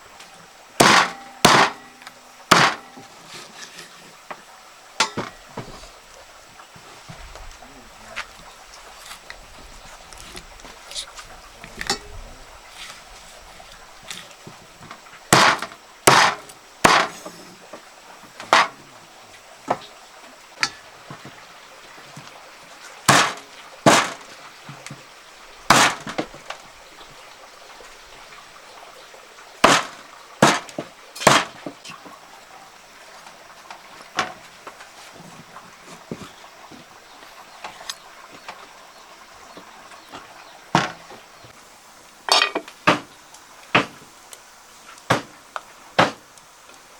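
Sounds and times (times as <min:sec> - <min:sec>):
sharp ringing knocks: 0:00.8 - 0:03.2, 0:05.0 - 0:05.6, 0:14.8 - 0:17.3, 0:18.4 - 0:18.8, 0:20.6 - 0:20.9, 0:23.1 - 0:24.4, 0:25.7 - 0:26.4, 0:29.6 - 0:31.7.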